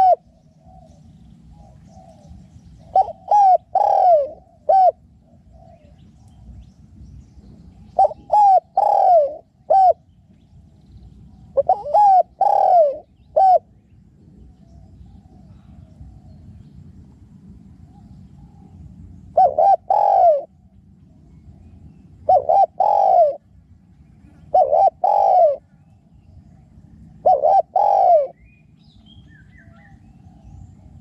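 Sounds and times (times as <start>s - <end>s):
dove cooing: 0.0s - 6.5s, 7.8s - 10.1s, 11.4s - 16.5s, 17.9s - 25.9s, 26.8s - 31.0s.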